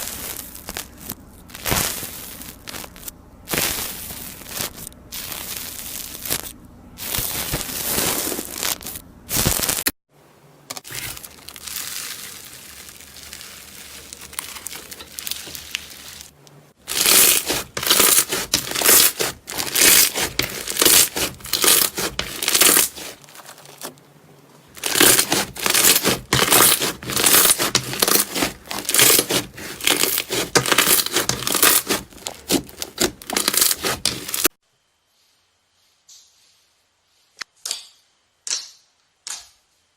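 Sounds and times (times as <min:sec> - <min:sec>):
slime squeezed wet crackling: 0:10.9 - 0:16.3, 0:16.9 - 0:23.9, 0:24.8 - 0:34.4.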